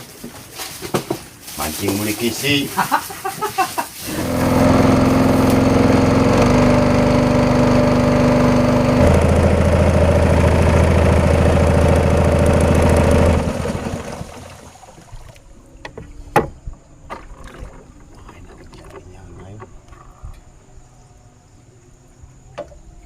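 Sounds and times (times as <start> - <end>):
small engine running: 4.0 - 15.0.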